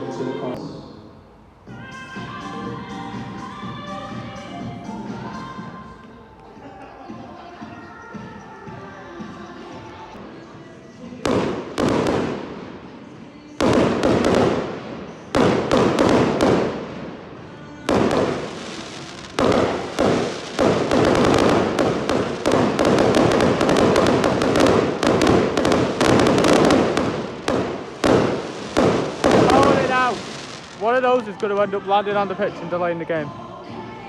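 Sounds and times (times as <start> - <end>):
fireworks bangs and crackling: 10.2 - 32.8.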